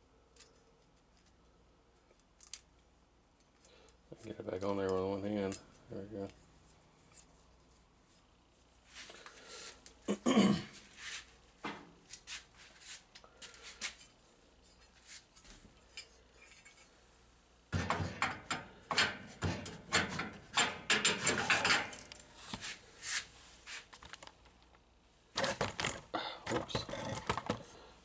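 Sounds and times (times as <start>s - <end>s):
clicks and knocks of parts: 2.0s - 4.0s, 17.7s - 22.6s, 25.4s - 27.7s
parts clattering and scraping: 10.8s - 17.0s, 17.7s - 24.8s, 25.4s - 27.8s.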